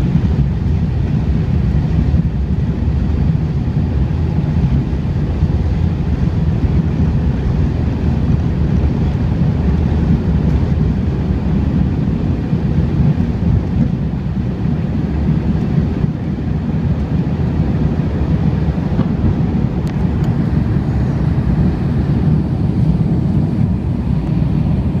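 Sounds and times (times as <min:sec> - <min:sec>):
airflow rumble: 0:00.0 - 0:25.0
jet engines at high thrust: 0:00.0 - 0:25.0.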